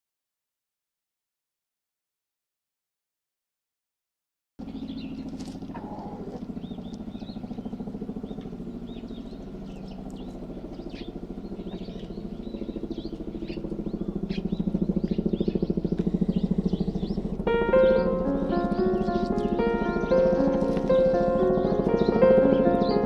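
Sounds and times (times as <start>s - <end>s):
aircraft pulsing drone: 4.6s - 23.0s
small birds chirping: 4.6s - 23.0s.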